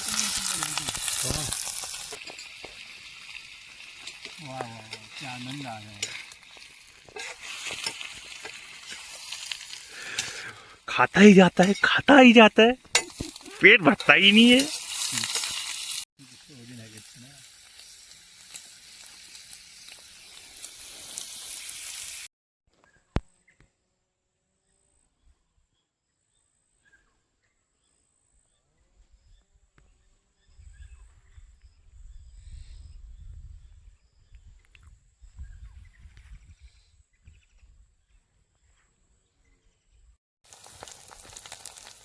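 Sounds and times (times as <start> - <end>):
food sizzling in a pan: 0.0 - 10.7, 11.7 - 22.3, 40.5 - 42.0.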